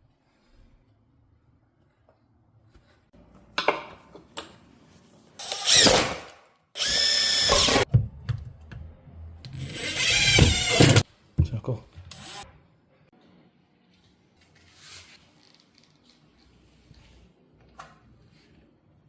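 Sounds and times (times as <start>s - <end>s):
power drill whining: 5.4s - 5.9s, 6.8s - 7.8s, 9.5s - 11.0s, 12.1s - 12.4s.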